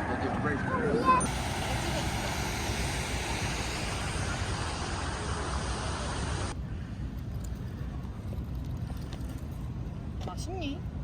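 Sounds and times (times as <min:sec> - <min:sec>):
road traffic rumble: 0:00.0 - 0:11.0
traffic hiss: 0:00.8 - 0:06.6.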